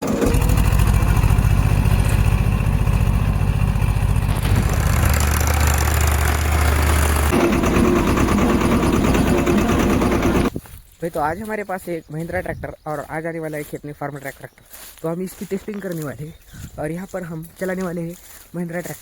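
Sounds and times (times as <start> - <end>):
tractor diesel engine running: 0.0 - 10.6.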